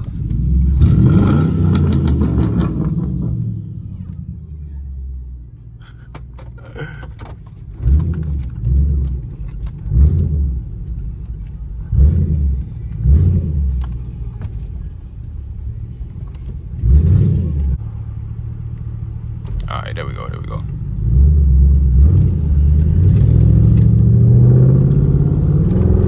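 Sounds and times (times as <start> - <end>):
engine throttle revs: 0.2 - 3.8, 11.8 - 14.0, 16.8 - 17.8, 20.9 - 26.0.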